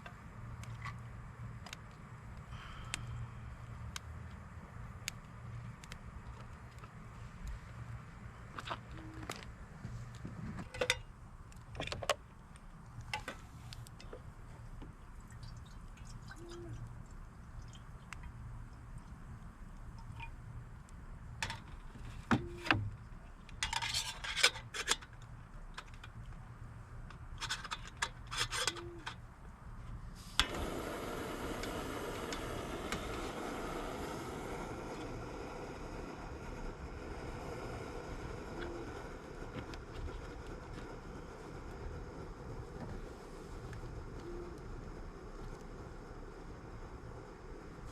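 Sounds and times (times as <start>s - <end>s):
steady hissing rush: 29.7s - 47.9s.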